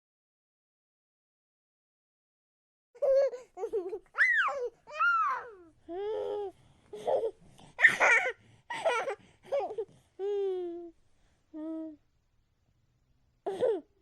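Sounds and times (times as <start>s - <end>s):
child giggling: 7.8s - 9.2s.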